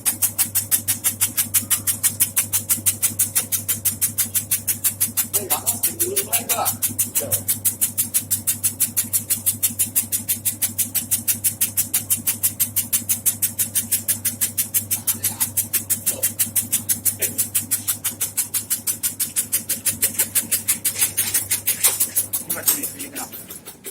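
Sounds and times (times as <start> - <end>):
motor hum: 0.0 - 23.9
cutting blade chopping: 9.8 - 23.9.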